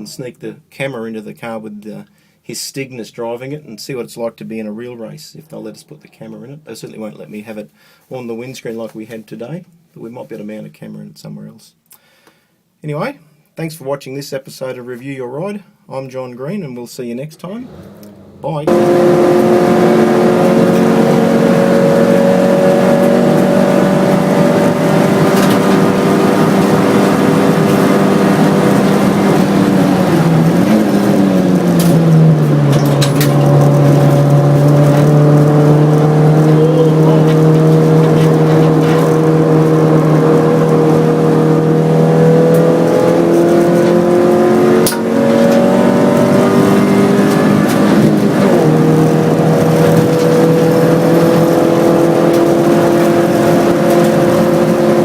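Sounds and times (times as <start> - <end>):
race car engine running hard: 17.6 - 55.0.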